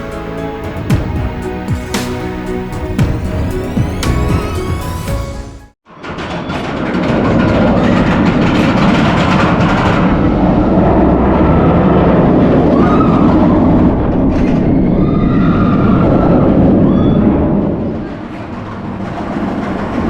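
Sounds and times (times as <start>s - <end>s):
roller coaster rumbling on track: 6.0s - 20.0s.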